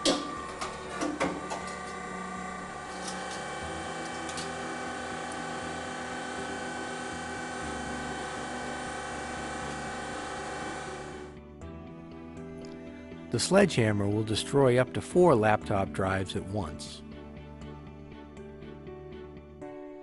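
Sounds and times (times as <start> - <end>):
crusher motor hum and whine: 0.0 - 11.4.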